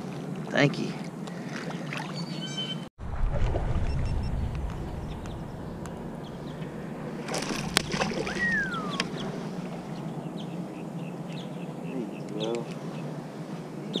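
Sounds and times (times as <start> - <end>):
water noise around boat: 0.0 - 14.0
wind: 0.0 - 14.0
falling whistle: 8.3 - 9.1.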